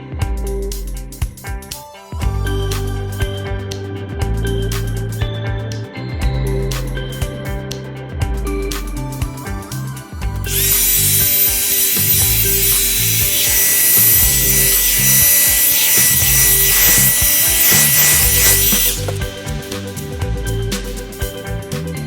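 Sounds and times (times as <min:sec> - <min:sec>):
background music: 0:00.0 - 0:22.0
hot-air brush motor whine: 0:10.5 - 0:19.4.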